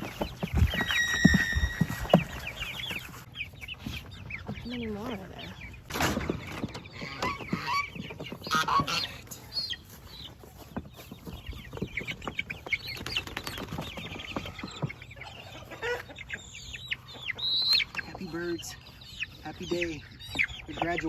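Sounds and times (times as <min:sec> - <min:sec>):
small knocks and scuffs: 0:00.0 - 0:05.1, 0:05.9 - 0:15.7
chickens cheeping and clucking: 0:00.0 - 0:21.0.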